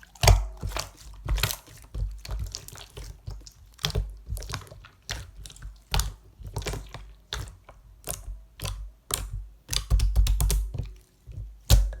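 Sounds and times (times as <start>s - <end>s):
slime clicking and popping: 5.9s - 10.8s.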